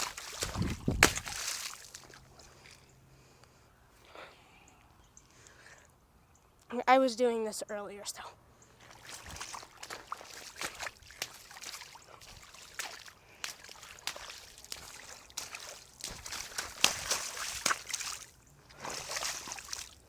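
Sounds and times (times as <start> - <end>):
feet splashing in mud puddle: 0.0 - 2.8, 8.8 - 20.0.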